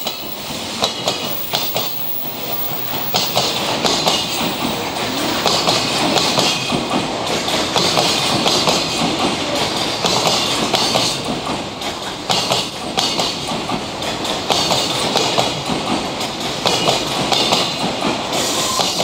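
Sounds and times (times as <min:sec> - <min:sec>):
freight train wheels clattering: 0:00.0 - 0:19.0.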